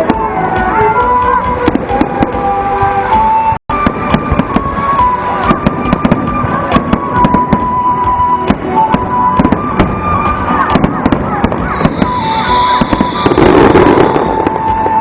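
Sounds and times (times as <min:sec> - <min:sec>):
fireworks cracking and popping: 0:03.2 - 0:15.0.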